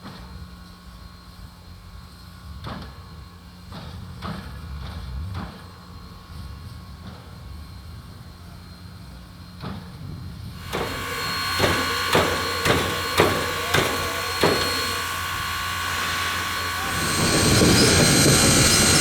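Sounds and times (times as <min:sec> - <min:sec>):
steady ringing tone: 0:10.6 - 0:19.0
steam train sharp beat: 0:10.6 - 0:19.0.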